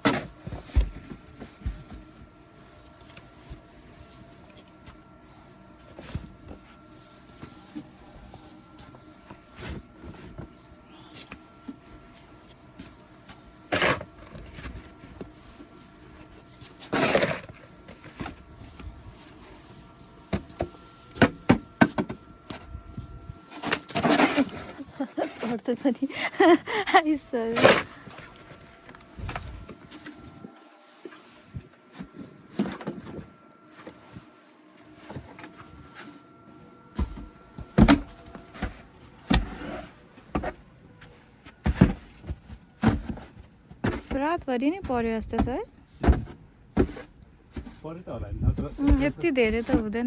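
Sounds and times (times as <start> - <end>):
snow shovel scraping: 13.7 - 14.8, 16.8 - 17.6, 23.5 - 28.4, 38.6 - 40.0.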